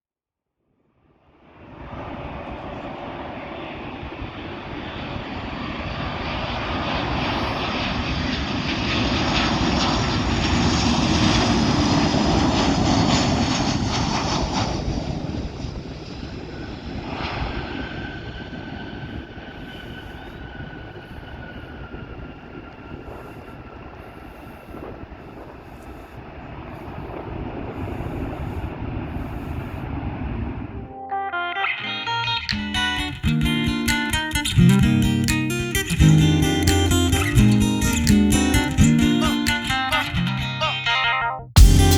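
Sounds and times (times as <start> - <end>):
jet engines of landing plane: 1.4 - 30.9.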